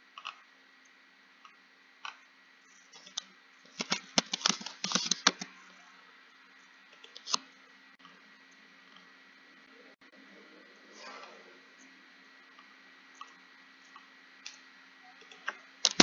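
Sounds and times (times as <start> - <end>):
typing on computer keyboard: 3.0 - 5.5.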